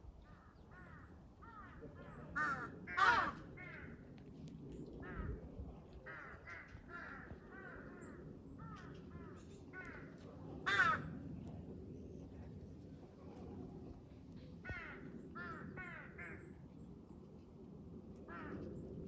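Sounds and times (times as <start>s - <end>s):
crows cawing: 0.3s - 4.0s, 6.1s - 11.1s, 14.6s - 16.5s, 18.3s - 18.7s.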